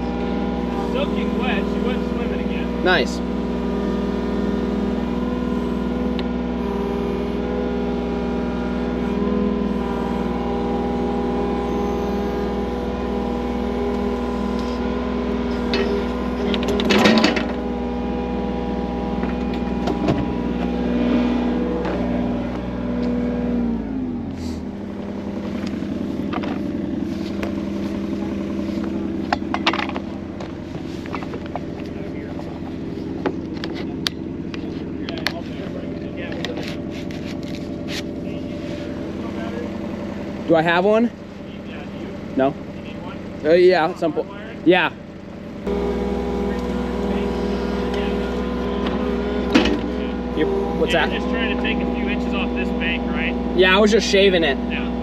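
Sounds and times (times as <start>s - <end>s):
loader engine running: 0.0s - 55.0s
loud metal clank: 15.6s - 17.6s.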